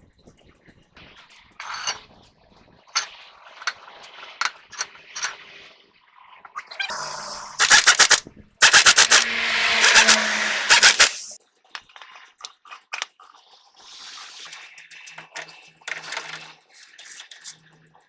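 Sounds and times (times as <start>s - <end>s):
air hiss: 6.9s - 11.4s
air impact wrench hammering: 6.9s - 11.4s
metallic tool clicks: 7.2s - 11.4s.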